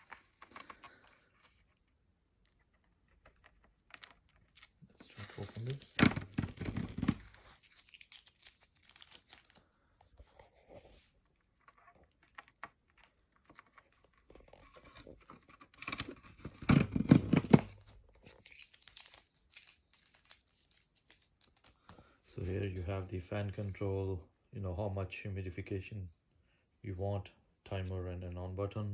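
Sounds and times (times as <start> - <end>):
plastic packaging tearing and crinkling: 3.1 - 9.7, 11.4 - 21.7.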